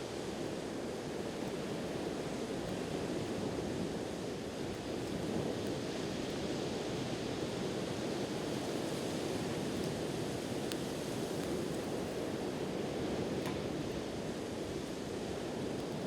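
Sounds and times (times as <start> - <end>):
campfire crackling: 8.3 - 16.0.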